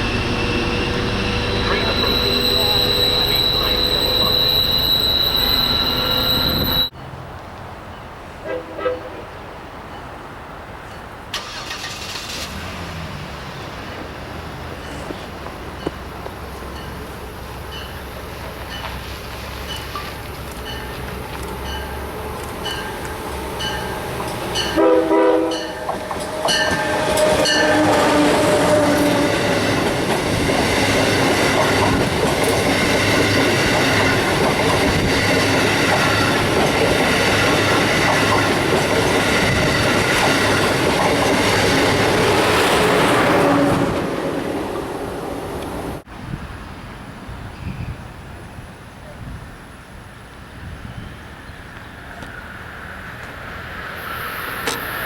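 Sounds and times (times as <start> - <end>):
crossing bell dings: 0.0 - 6.9, 16.7 - 17.1, 19.6 - 27.8
train wheels rattling on rail: 0.0 - 7.0, 13.8 - 46.0
multi-note train horn blasts: 24.6 - 29.5.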